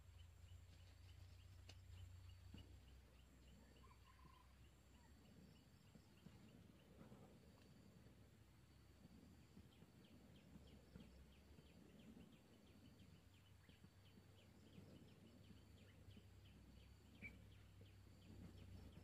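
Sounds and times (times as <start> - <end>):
faint rapid chirping: 0.0 - 19.0.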